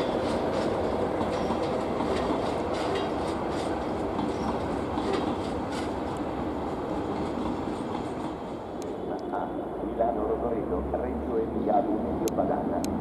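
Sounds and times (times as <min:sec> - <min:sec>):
wheels clicking over rail joints: 0:00.0 - 0:06.0
train wheels rumbling on rail: 0:00.0 - 0:13.0.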